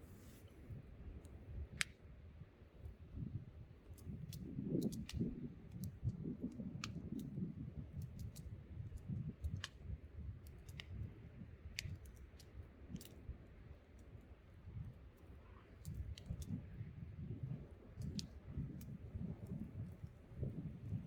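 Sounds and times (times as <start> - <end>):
wind rumble: 16.2 - 21.0.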